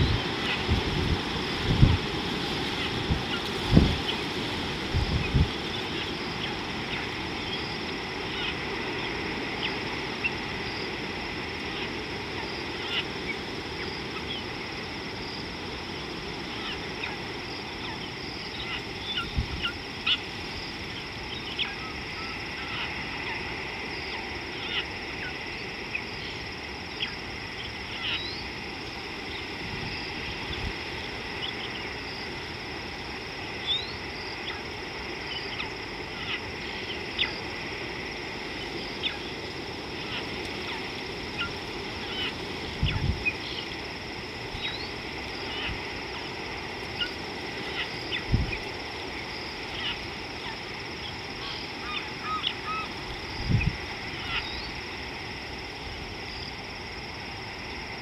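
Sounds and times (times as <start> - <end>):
wind thumps on microphone: 0.0 - 2.3, 2.9 - 4.1, 4.8 - 5.6
background hiss: 0.0 - 58.0.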